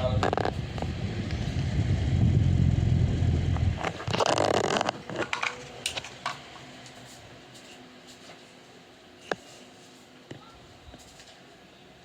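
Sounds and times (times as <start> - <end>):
fan air buffeting microphone: 0.0 - 11.7
crackling handling noise: 3.8 - 10.2.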